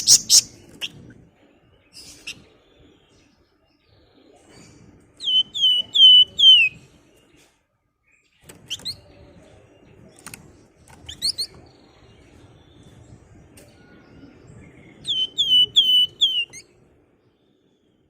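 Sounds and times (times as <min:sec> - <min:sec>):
songbird whistled notes: 0:05.2 - 0:06.8, 0:13.7 - 0:16.7.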